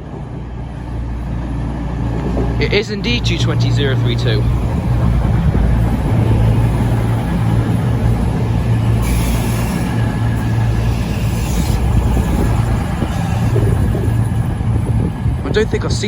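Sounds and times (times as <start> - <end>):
diesel engines droning: 0.0 - 16.0
hiss: 9.0 - 12.5.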